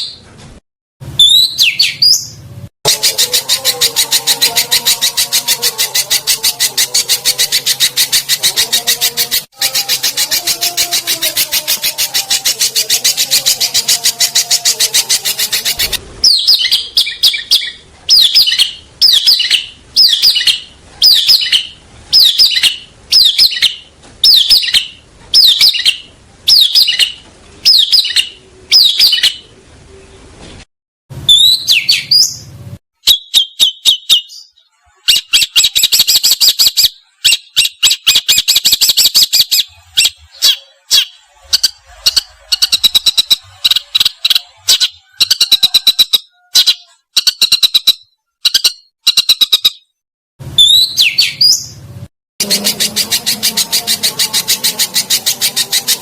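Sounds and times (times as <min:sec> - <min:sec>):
songbirds whistling and trilling: 0:01.2 - 0:29.5, 0:31.3 - 0:50.0, 0:50.6 - 0:51.8, 0:52.4 - 0:56.0.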